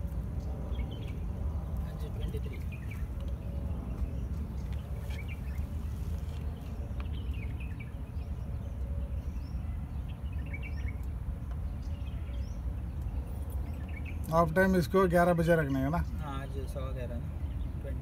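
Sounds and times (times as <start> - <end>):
birds chirping: 0.0 - 18.0
steady low rumble: 0.0 - 18.0.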